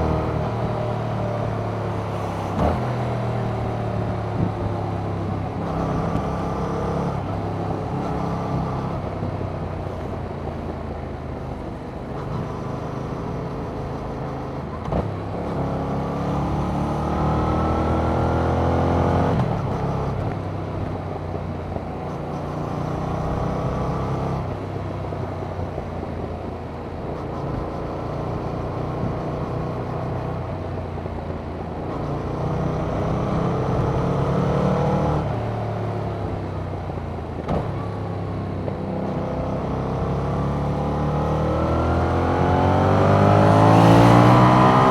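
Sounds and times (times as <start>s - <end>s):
motorcycle engine revving: 37.4s - 44.9s.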